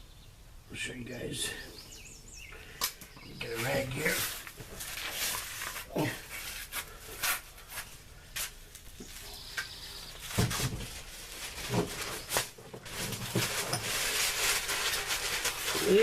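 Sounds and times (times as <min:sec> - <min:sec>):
clicks and rustles of tools: 0:10.3 - 0:16.0.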